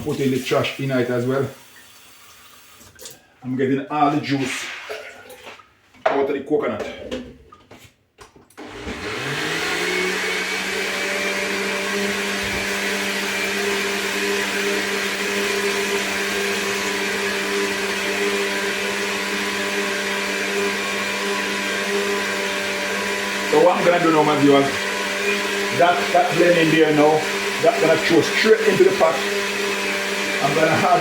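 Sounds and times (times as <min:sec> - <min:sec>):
electric blender running: 0:08.6 - 0:31.0.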